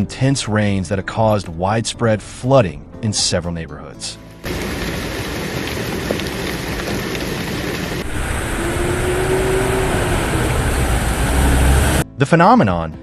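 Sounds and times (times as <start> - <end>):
floodwater rushing: 4.4 - 12.0
heavy rain: 4.4 - 12.0
low rumble: 4.4 - 12.0.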